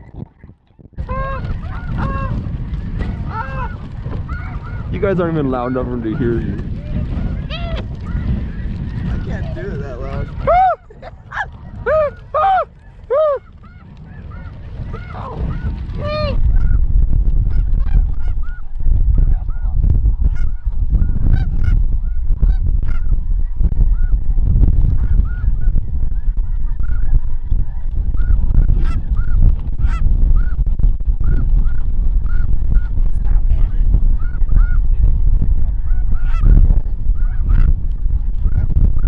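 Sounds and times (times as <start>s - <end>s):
wind rumble on microphone: 0.0s - 39.0s
geese honking: 1.0s - 16.8s, 17.5s - 18.7s, 19.3s - 20.7s, 34.2s - 34.8s, 35.8s - 36.6s, 37.2s - 37.7s.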